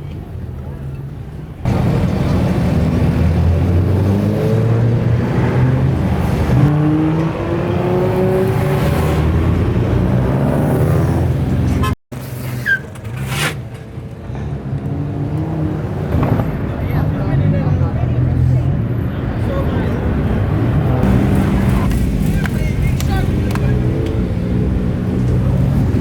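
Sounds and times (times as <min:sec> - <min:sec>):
traffic noise: 0:00.0 - 0:26.0
car engine revving: 0:01.7 - 0:11.9, 0:20.1 - 0:26.0.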